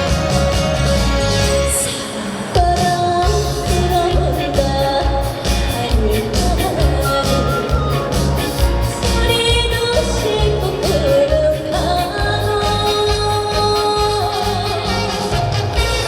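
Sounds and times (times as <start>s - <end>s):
backing track with heavy beat: 0.0s - 16.0s
woman singing: 1.7s - 15.6s.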